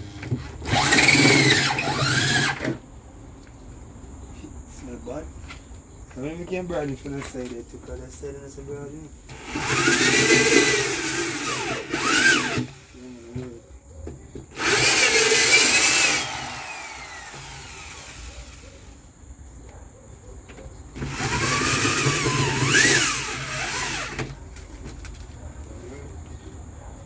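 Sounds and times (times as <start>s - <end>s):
electric drill boring through plastic: 0.2s - 2.8s, 9.3s - 13.0s, 14.5s - 19.0s, 21.0s - 24.4s.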